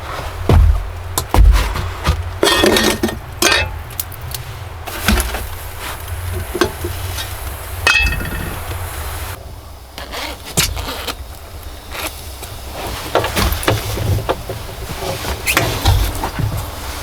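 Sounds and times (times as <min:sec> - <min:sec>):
dishes knocking and clinking: 0:00.5 - 0:03.8, 0:07.8 - 0:08.8.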